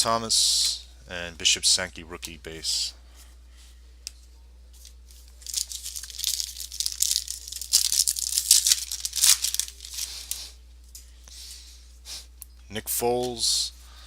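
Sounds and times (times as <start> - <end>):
wrapper tearing and crinkling: 5.1 - 10.5.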